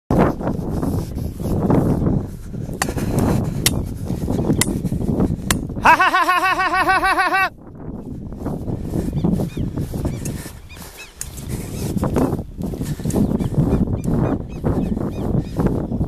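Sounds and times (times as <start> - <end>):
wind buffeting microphone: 0.1 - 16.0
bird rapid calls: 9.1 - 12.0.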